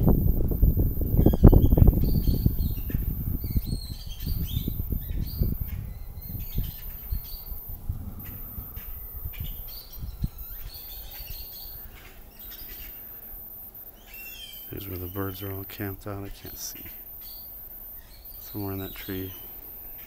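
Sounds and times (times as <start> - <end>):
wind buffeting microphone: 0.0 - 13.9
small birds chirping: 0.0 - 20.0.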